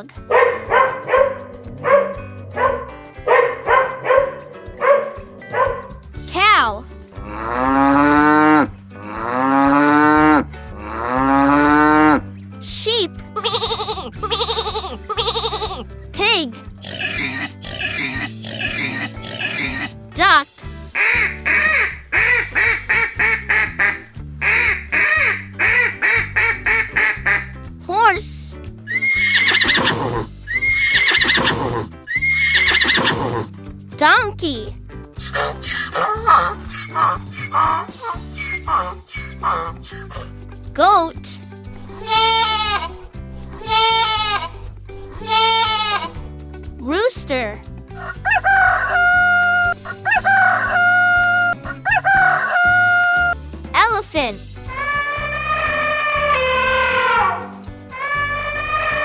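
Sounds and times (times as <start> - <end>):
background music with bass: 0.0 - 59.0
duck quacking: 21.0 - 27.6, 36.7 - 40.3
rooster crowing: 50.0 - 53.3.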